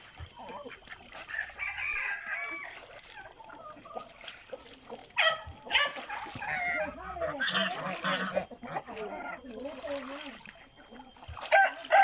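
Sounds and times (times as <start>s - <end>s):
poultry calling: 5.2s - 9.6s.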